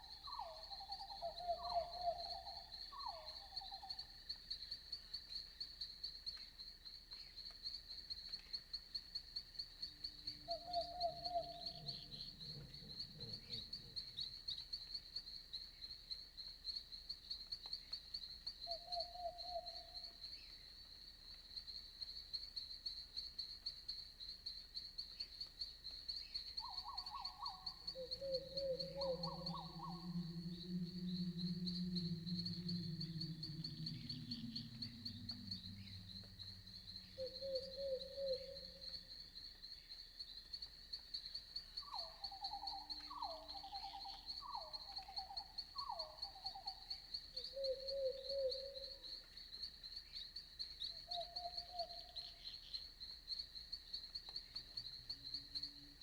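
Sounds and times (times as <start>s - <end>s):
insect chirping: 0.0s - 56.0s
short pitched animal calls: 28.0s - 38.5s.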